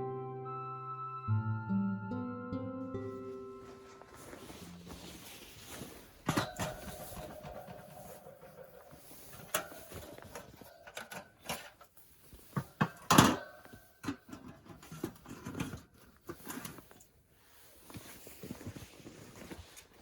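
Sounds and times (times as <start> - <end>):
objects knocking and clattering: 5.7 - 17.0.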